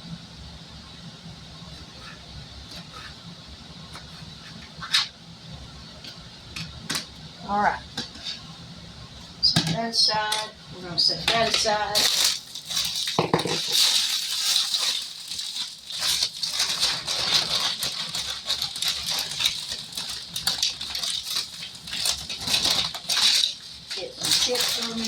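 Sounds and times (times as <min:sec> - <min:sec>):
plastic chip bag crinkling: 0:11.2 - 0:25.0.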